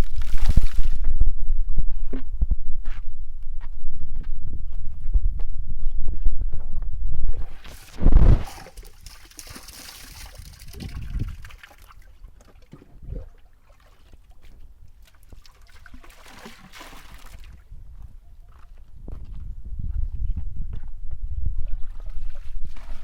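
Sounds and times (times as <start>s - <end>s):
water trickling and splashing: 7.6s - 17.7s.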